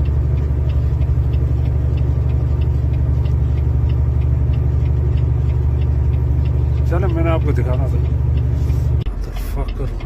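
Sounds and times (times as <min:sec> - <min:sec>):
diesel truck engine rumbling: 0:00.0 - 0:10.0
faint light ticking: 0:00.0 - 0:10.0.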